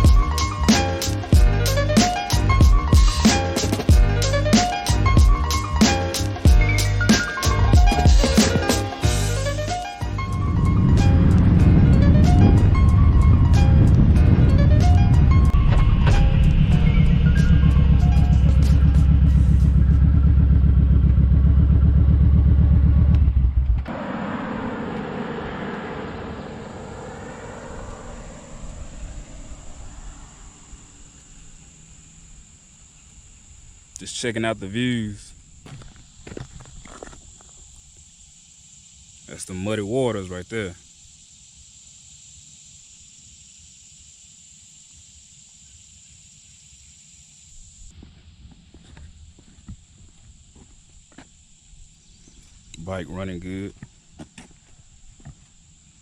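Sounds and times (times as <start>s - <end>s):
steady high hiss: 0.0s - 11.7s, 26.4s - 36.2s, 37.2s - 56.0s
wind and road noise: 7.5s - 32.5s, 35.2s - 38.0s
motorcycle engine droning: 10.1s - 31.4s.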